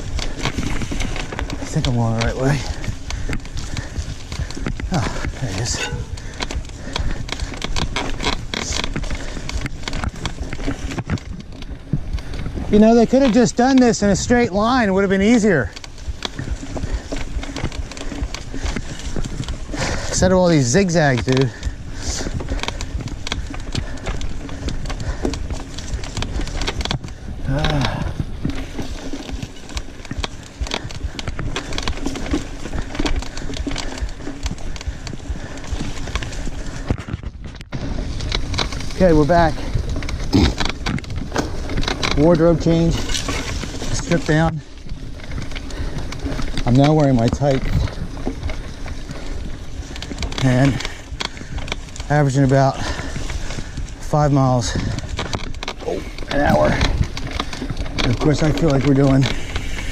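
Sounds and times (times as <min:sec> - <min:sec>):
bicycle frame rattling: 0:00.0 - 0:59.9
tyres rumbling on dirt: 0:00.0 - 0:59.9
low rumble: 0:02.6 - 0:09.4.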